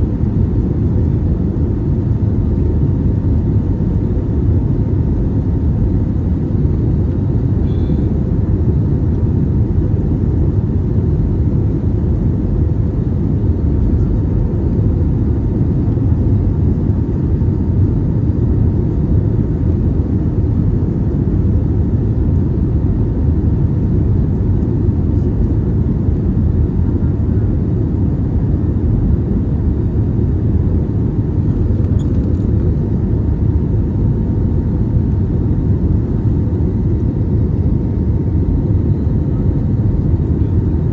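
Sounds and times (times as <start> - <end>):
faint steady hum: 0.0 - 21.6
airplane cabin rumble: 0.0 - 40.9.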